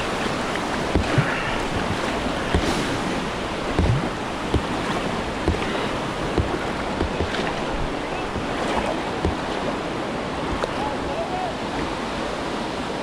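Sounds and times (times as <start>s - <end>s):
rushing whitewater: 0.0s - 13.0s
short low thumps: 0.9s - 8.5s, 9.2s - 9.6s.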